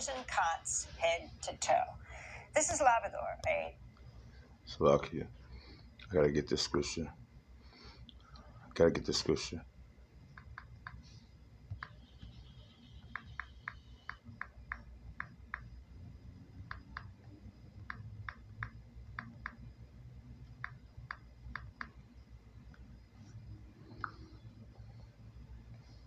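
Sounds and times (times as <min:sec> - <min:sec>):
steady low hum: 0:00.0 - 0:26.0
computer mouse clicking: 0:10.4 - 0:11.0, 0:11.7 - 0:12.4, 0:13.0 - 0:15.7, 0:16.6 - 0:17.1, 0:17.8 - 0:19.6, 0:20.6 - 0:22.0, 0:23.9 - 0:24.4.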